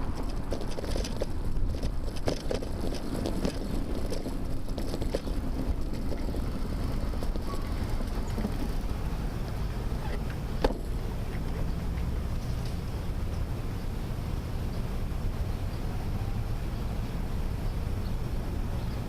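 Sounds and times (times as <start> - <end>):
wind and road rumble: 0.0 - 19.0.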